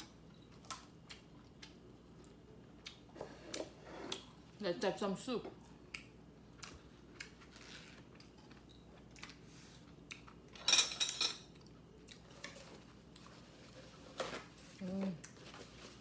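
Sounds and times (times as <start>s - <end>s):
utensils clinking against a bowl: 10.5s - 11.5s.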